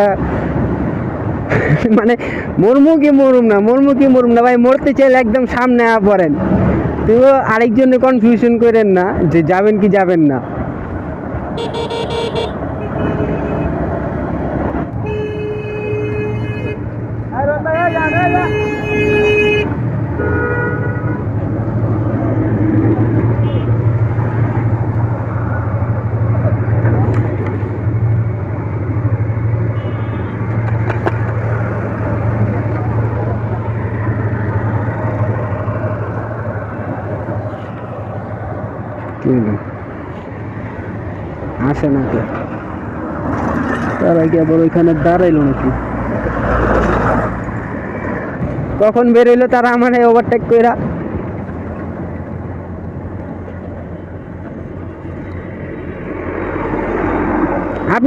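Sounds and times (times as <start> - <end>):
motorcycle engine and road drone: 0.0 - 58.0
wind rushing over microphone: 5.4 - 7.6.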